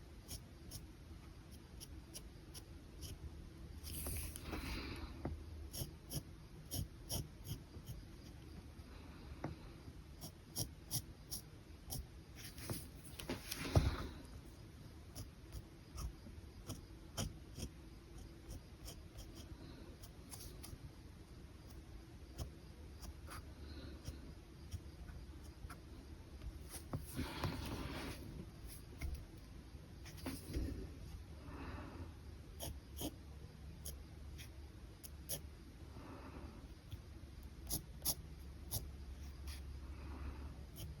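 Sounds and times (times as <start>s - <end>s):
pen scratching on paper: 3.8s - 4.7s, 5.7s - 8.3s, 10.2s - 14.0s, 15.1s - 20.8s, 32.6s - 33.2s.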